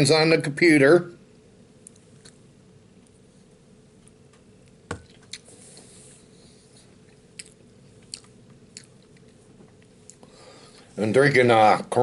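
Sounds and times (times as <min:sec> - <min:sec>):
low room hum: 0:00.0 - 0:12.0
person chewing food: 0:04.0 - 0:10.8.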